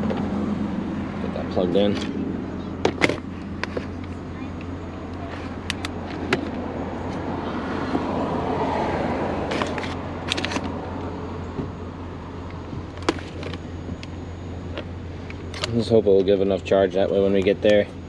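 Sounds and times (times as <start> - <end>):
car engine and cabin noise: 0.0 - 18.0
cord and plug clicking: 5.6 - 6.6.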